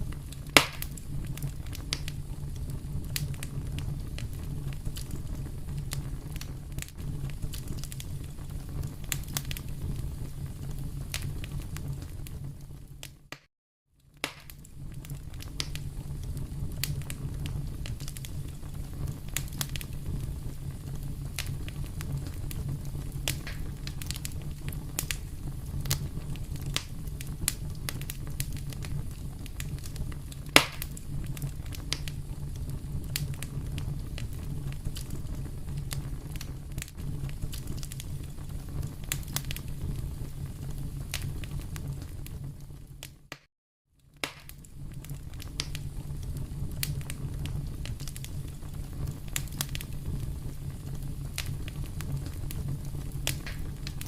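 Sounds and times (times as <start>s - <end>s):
low rumble: 0.0s - 13.1s, 14.6s - 43.0s
sharp pops of fire: 0.0s - 13.5s, 14.1s - 43.5s, 44.1s - 54.0s
fire crackling in fireplace: 0.0s - 54.0s.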